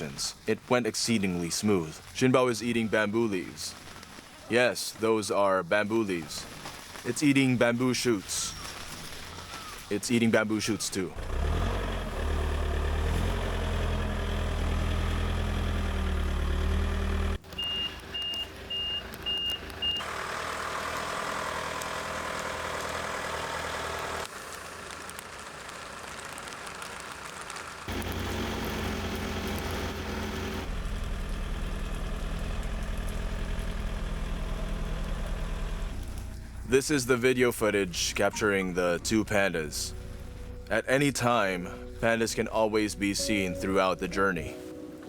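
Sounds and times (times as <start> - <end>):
truck engine running: 11.2 - 44.1
reversing alarm beeping: 17.5 - 20.0.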